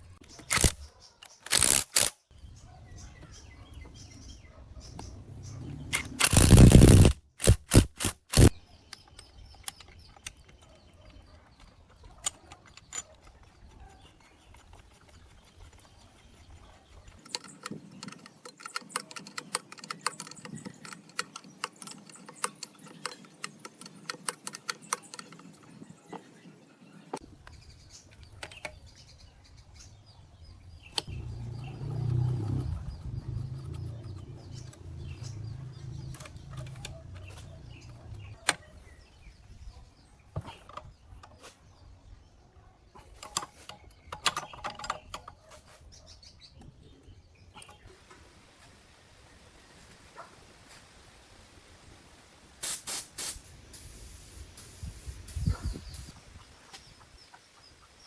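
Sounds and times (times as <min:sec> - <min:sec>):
metal parts clicking: 0:00.4 - 0:02.2, 0:05.9 - 0:08.5.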